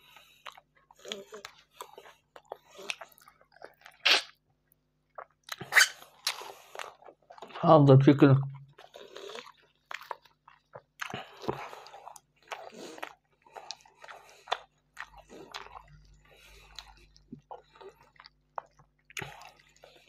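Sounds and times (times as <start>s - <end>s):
person chewing food: 0.0s - 7.6s, 8.6s - 20.0s.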